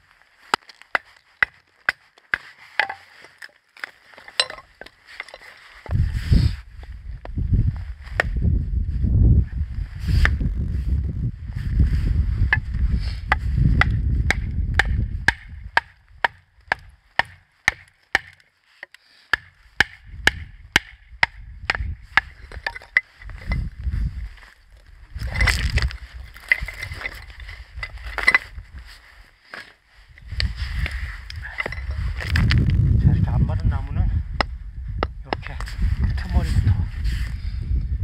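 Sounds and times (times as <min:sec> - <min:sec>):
axe chopping firewood: 0:00.5 - 0:06.0, 0:13.2 - 0:23.1
low rumble: 0:06.0 - 0:15.3.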